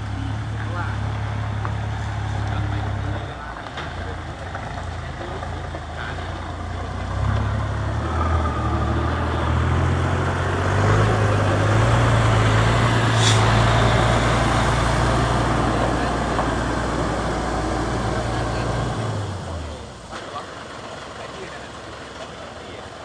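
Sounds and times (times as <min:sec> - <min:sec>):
truck diesel engine running: 0:00.0 - 0:23.0
short sharp hiss: 0:13.1 - 0:13.5.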